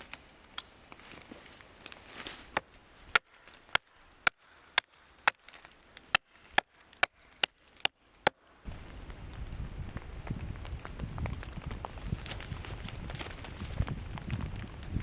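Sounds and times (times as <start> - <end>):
axe chopping wood: 2.4 - 8.5.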